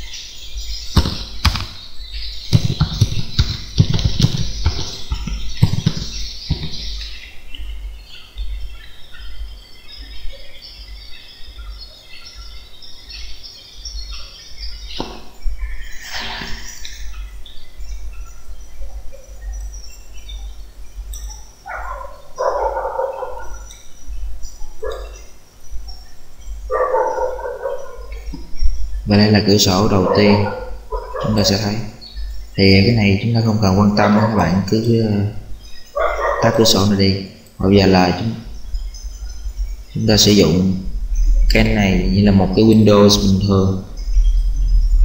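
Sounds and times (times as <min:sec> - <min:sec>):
small birds chirping: 0:00.0 - 0:45.0
loud low-pitched sounds: 0:00.8 - 0:08.6, 0:28.0 - 0:45.0.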